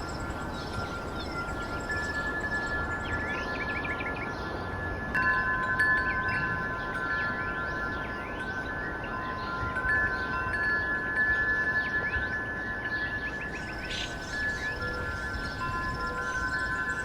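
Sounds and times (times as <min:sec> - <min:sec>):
wind chimes ringing: 0:00.0 - 0:17.0
bird-like chirps: 0:13.0 - 0:17.0.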